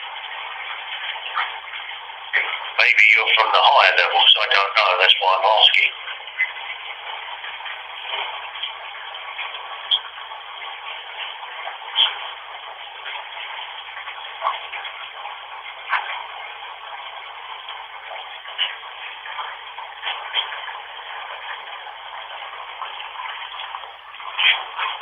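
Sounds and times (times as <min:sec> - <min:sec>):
crackling radio blips: 0:00.0 - 0:25.0
radio static hiss: 0:02.4 - 0:06.1.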